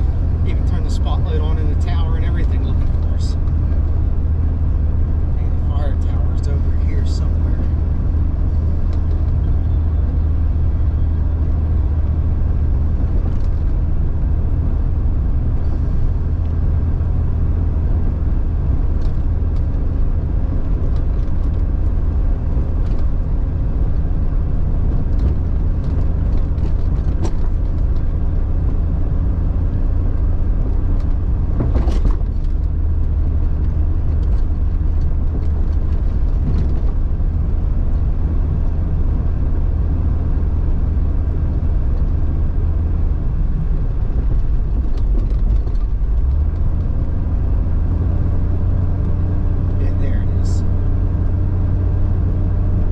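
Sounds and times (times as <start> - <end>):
car engine droning: 0.0 - 52.9
light clicks and rattles: 43.8 - 47.0.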